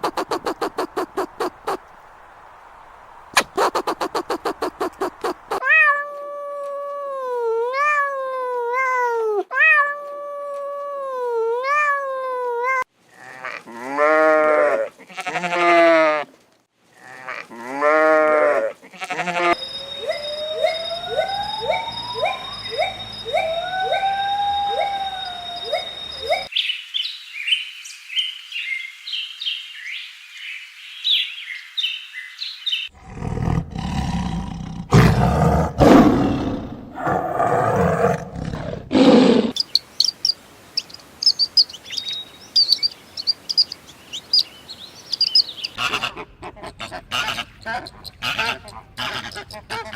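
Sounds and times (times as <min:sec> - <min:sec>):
animal calls: 0:00.0 - 0:02.3, 0:03.0 - 0:05.8, 0:19.0 - 0:26.5, 0:35.8 - 0:49.9
cat meowing: 0:07.7 - 0:10.1
high bird-like chirps: 0:19.6 - 0:30.0, 0:39.5 - 0:45.8
big cat roaring: 0:33.0 - 0:39.6.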